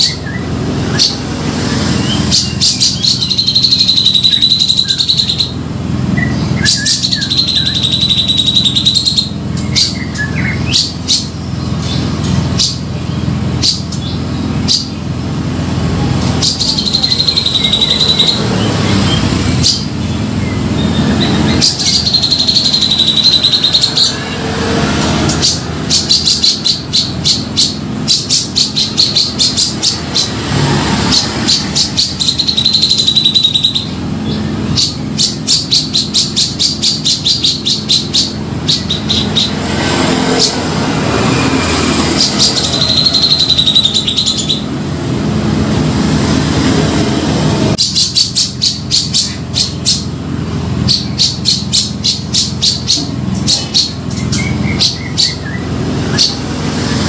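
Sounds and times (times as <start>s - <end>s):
bird singing: 0.0s - 45.2s, 47.7s - 57.0s.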